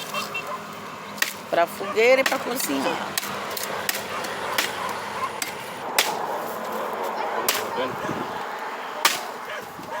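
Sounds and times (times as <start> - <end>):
axe chopping firewood: 1.2 - 1.5, 2.1 - 6.4, 7.4 - 7.9, 9.0 - 10.0.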